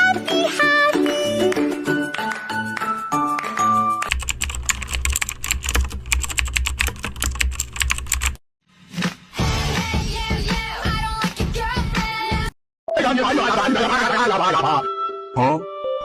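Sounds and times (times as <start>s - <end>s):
fast keyboard typing: 4.1s - 8.4s.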